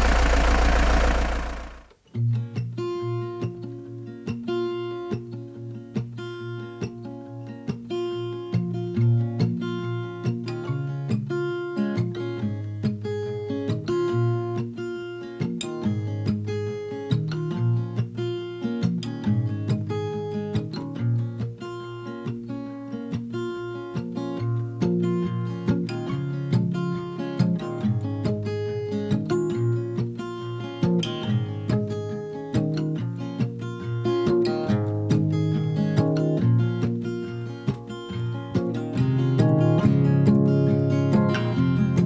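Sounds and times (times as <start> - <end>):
deep low rumble: 0.0 - 1.9.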